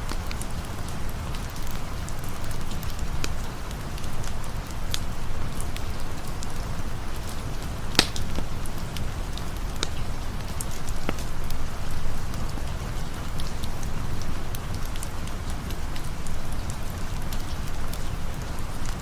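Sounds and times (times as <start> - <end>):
campfire crackling pops: 0.0 - 19.0
steady rain: 0.0 - 19.0.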